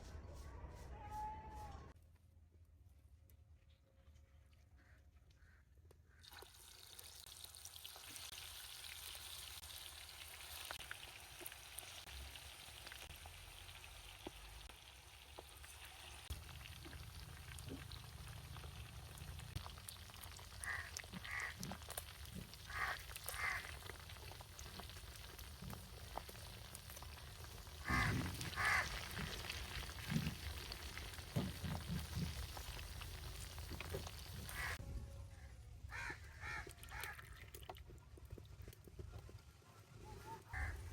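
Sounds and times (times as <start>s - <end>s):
chicken wings sizzling: 6.3s - 34.8s.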